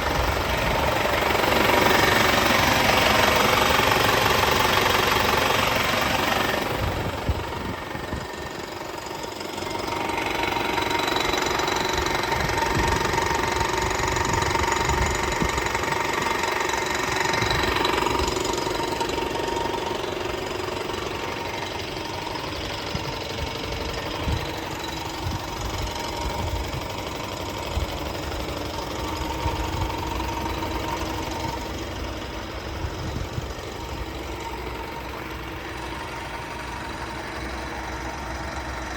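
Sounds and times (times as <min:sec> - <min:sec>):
diesel truck engine running: 0:00.0 - 0:38.9.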